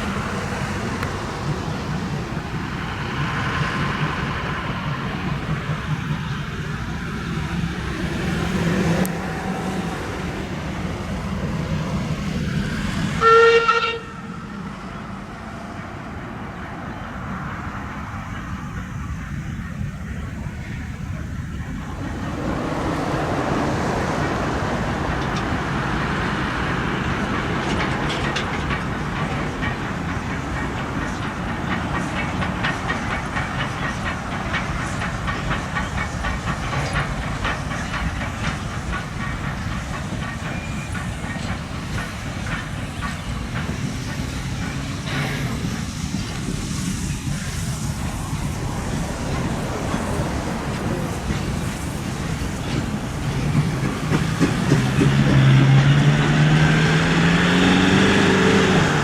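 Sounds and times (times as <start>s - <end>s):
steam locomotive hissing: 0.0s - 59.0s
wheels clicking over rail joints: 21.6s - 59.0s.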